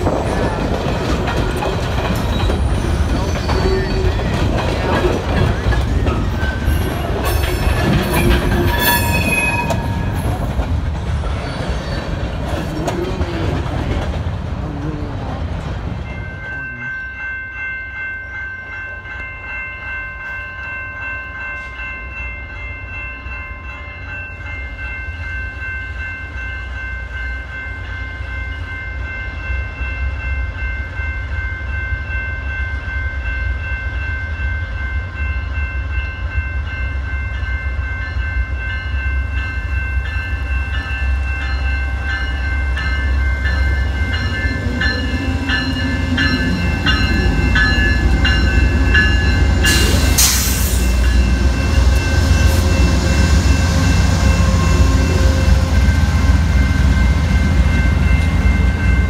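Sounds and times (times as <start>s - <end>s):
freight train wheel clatter: 0.0s - 16.7s, 40.4s - 59.0s
approaching passenger train rumble: 0.0s - 59.0s.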